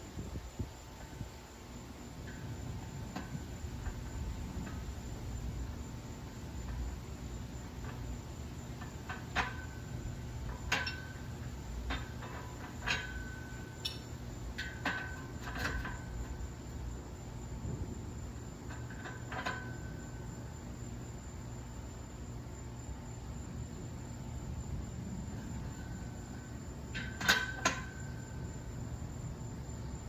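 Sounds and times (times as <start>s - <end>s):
steady low hum: 0.0s - 30.0s
weight plates clinking: 10.6s - 16.4s.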